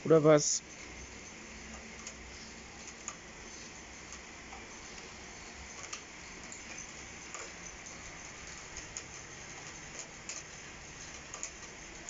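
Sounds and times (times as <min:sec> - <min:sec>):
heavy rain hissing: 0:00.0 - 0:12.0
raindrops ticking nearby: 0:00.1 - 0:12.0.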